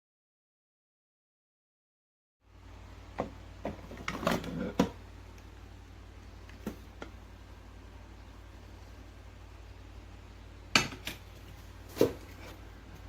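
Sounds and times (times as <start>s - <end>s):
steady low hum: 2.4s - 13.0s.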